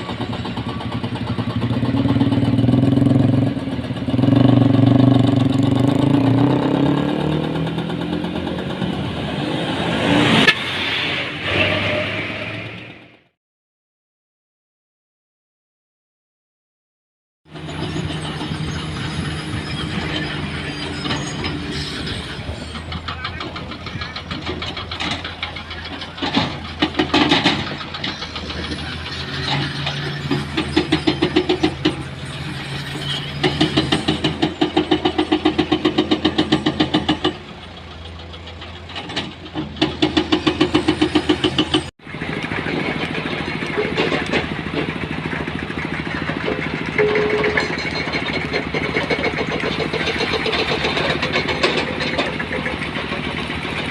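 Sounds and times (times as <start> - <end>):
engine running with pulsing: 41.2 - 53.9.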